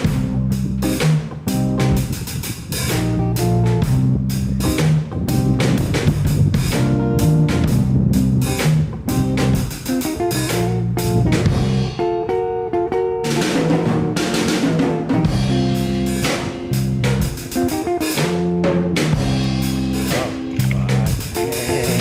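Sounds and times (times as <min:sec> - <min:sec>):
band music with guitar and drums: 0:00.0 - 0:22.0.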